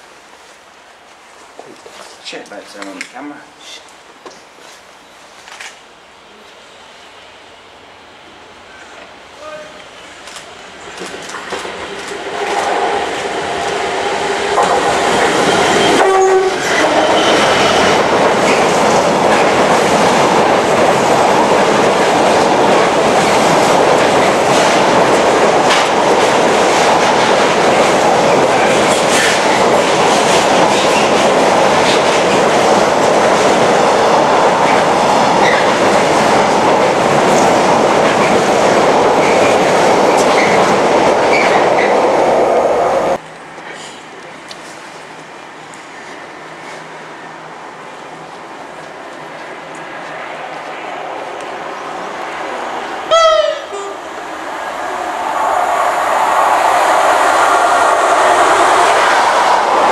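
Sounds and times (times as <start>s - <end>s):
train passing rush: 0.0s - 59.9s
two-tone locomotive horn: 15.8s - 17.7s, 53.1s - 54.0s.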